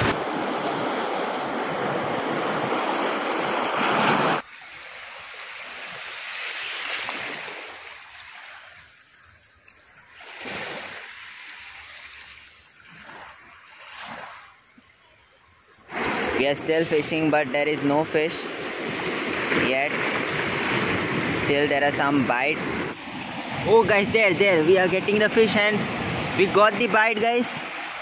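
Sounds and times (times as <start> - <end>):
wind on microphone: 18.7 - 26.6.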